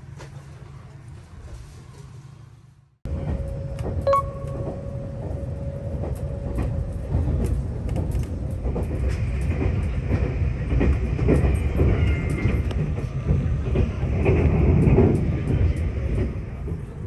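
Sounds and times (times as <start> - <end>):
train carriage rumble: 0.0 - 17.0
wheels clicking over rail joints: 3.1 - 17.0
steady tone: 4.0 - 6.1.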